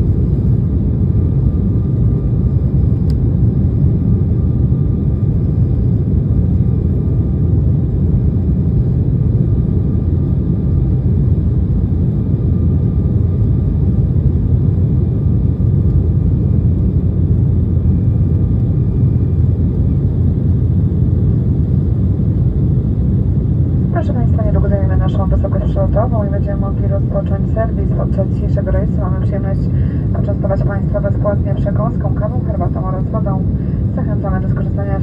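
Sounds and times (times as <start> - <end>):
jet engines and airflow rumble: 0.0 - 35.0
faint steady whine: 22.9 - 35.0.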